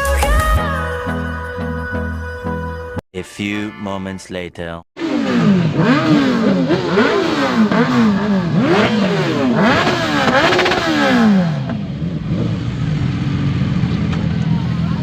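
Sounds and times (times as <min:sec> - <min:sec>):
motorcycle engine revving: 0:05.0 - 0:15.0.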